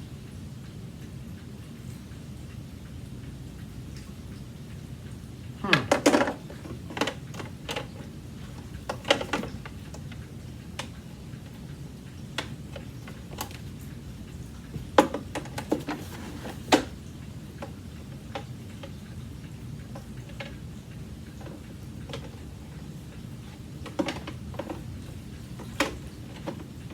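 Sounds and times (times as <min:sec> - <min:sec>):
plastic parts clicking and knocking: 0:05.7 - 0:10.2, 0:12.4 - 0:13.6, 0:14.8 - 0:17.0, 0:21.4 - 0:22.4, 0:23.8 - 0:26.9.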